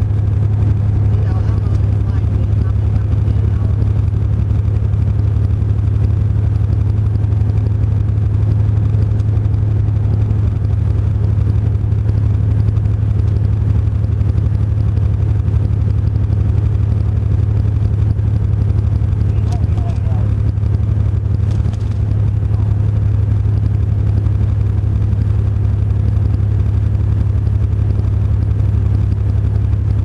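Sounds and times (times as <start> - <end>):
road noise: 0.0 - 30.0
truck engine droning: 0.0 - 30.0.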